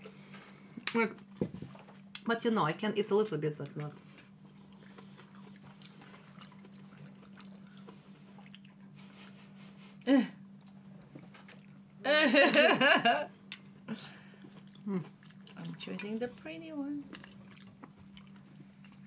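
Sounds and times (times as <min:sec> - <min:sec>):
chewing cherries: 0:03.6 - 0:08.9, 0:10.4 - 0:11.8, 0:13.5 - 0:19.0
person laughing: 0:12.1 - 0:13.3.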